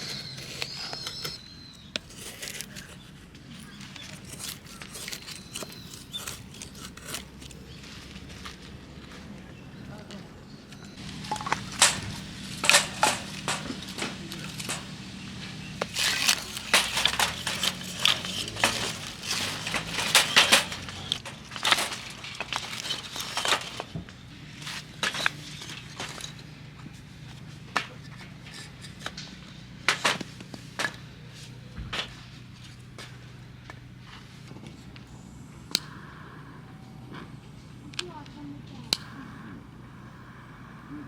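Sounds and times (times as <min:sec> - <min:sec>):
wood fire crackling: 0:11.0 - 0:25.9.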